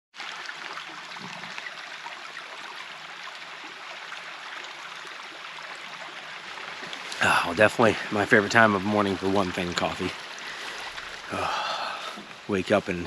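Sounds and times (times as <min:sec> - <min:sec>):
faint water trickling: 0:00.2 - 0:13.0
stream flowing: 0:00.2 - 0:13.0.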